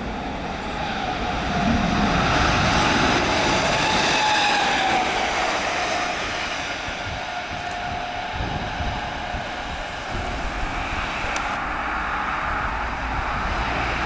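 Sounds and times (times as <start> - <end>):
train wheel and rail rumble: 0.0 - 14.0.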